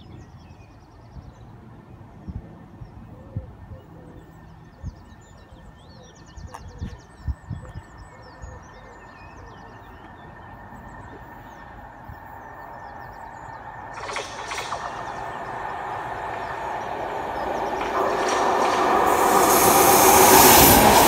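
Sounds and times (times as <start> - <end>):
birds chirping: 3.8 - 21.0
train rumbling: 13.2 - 21.0
rail clatter: 13.8 - 21.0.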